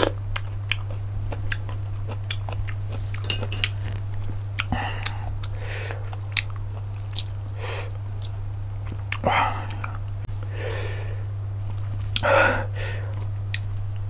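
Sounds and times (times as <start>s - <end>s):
chewing and biting clicks: 0.0s - 10.2s, 13.1s - 14.0s
low electrical hum: 0.0s - 14.0s.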